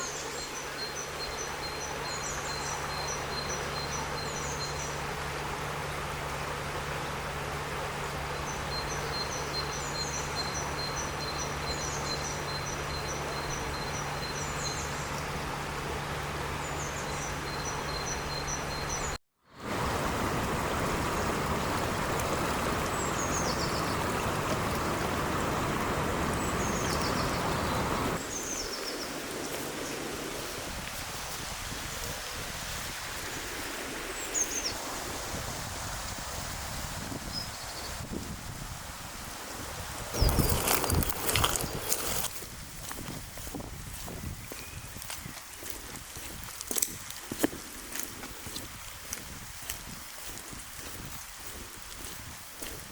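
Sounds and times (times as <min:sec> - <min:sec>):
small birds chirping: 0:20.7 - 0:30.0, 0:40.2 - 0:42.3, 0:43.9 - 0:46.3.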